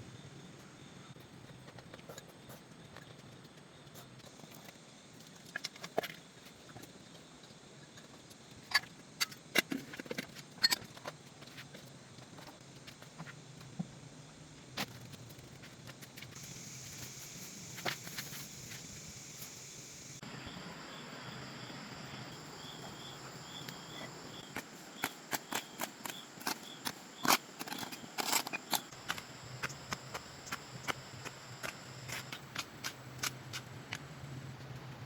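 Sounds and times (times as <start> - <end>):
insects buzzing: 16.4 - 34.6.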